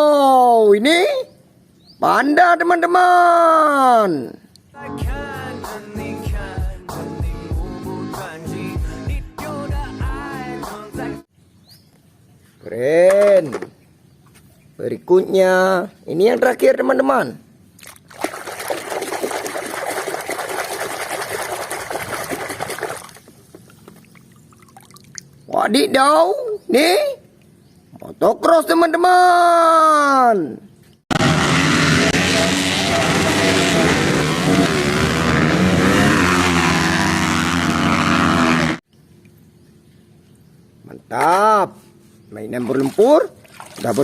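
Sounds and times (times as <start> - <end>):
water running and splashing: 17.8 - 25.3, 42.6 - 44.0
motorcycle engine revving: 31.1 - 38.9.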